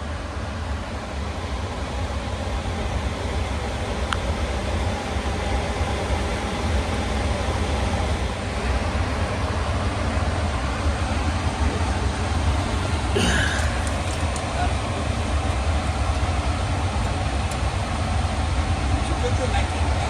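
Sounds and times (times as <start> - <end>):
machine rumbling: 8.7 - 19.2.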